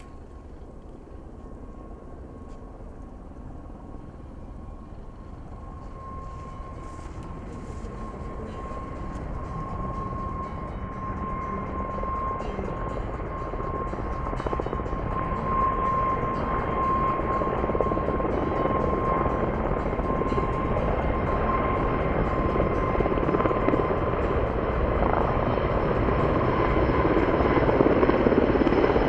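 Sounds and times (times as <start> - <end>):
helicopter flying: 0.0 - 29.0.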